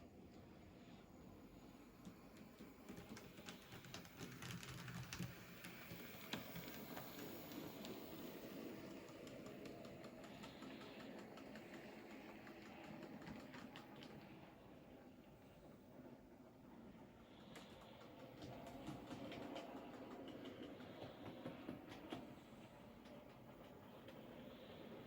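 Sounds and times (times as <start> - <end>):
model train motor humming: 1.8 - 14.8.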